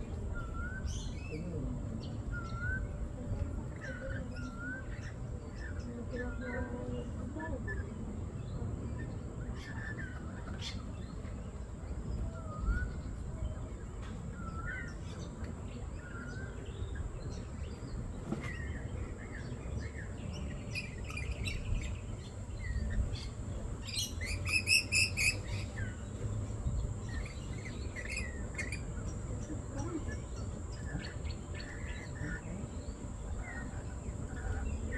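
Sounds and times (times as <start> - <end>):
low steady rumble: 0.0 - 34.9
parrots chirping: 23.8 - 26.2, 27.0 - 32.5.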